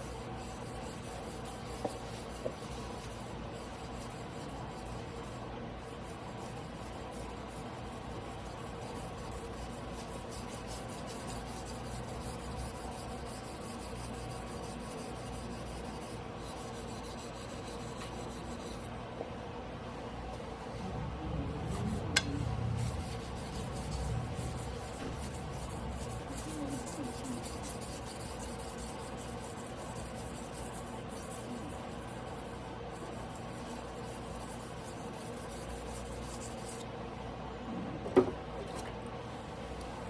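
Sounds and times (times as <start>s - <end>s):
blade scraping on whetstone: 22.9s - 36.8s.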